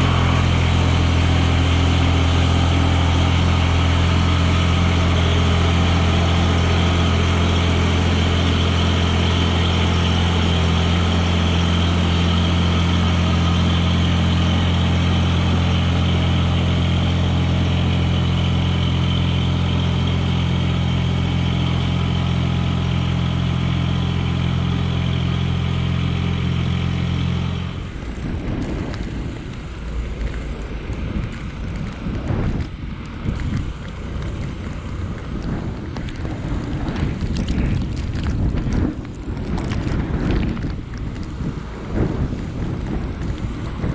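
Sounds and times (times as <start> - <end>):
tractor diesel engine running: 0.0 - 43.9
wind buffeting microphone: 27.8 - 43.9.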